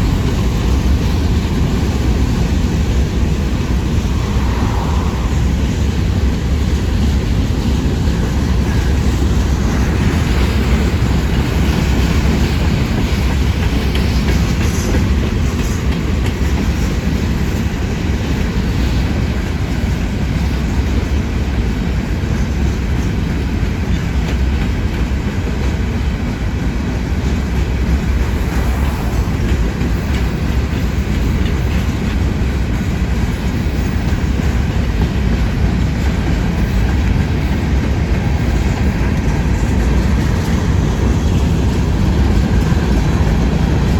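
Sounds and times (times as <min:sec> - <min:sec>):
freight train rumbling past: 0:00.0 - 0:43.9
wheels clacking over rail joints: 0:06.2 - 0:43.9.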